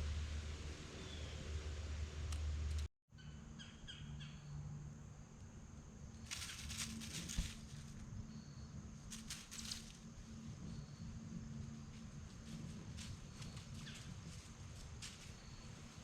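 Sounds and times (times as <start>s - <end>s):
rustling: 6.2s - 8.1s, 9.0s - 10.1s.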